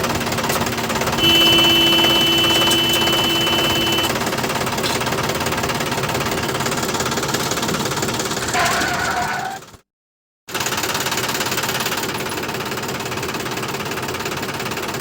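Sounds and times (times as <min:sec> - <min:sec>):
steady whine: 0:01.2 - 0:04.1.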